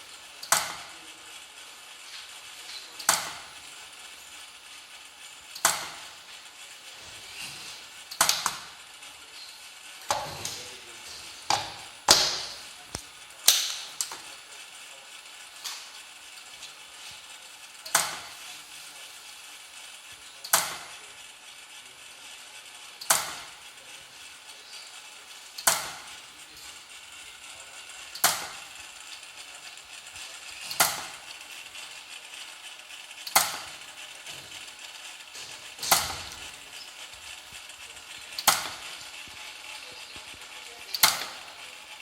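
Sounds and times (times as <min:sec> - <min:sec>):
sharp electrical discharge cracks: 0:11.5 - 0:14.3, 0:23.0 - 0:23.6, 0:25.6 - 0:26.1, 0:28.1 - 0:28.7, 0:30.6 - 0:31.3, 0:33.2 - 0:33.9, 0:35.4 - 0:36.8, 0:38.3 - 0:39.0, 0:40.9 - 0:41.5.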